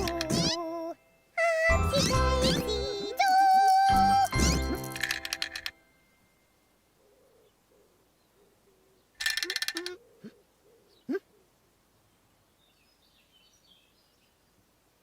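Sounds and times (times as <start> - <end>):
rapid jingling clicks: 4.8 - 5.8.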